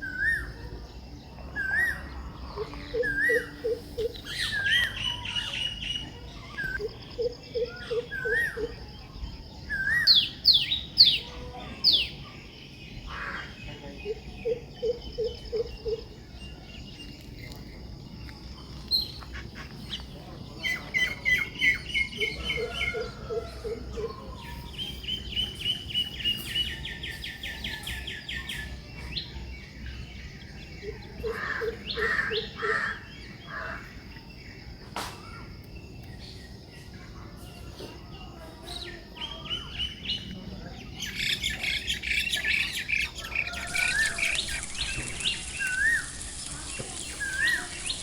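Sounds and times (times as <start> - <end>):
bird low hoots: 1.6 - 5.8
high chirping bird trills: 41.1 - 48.0.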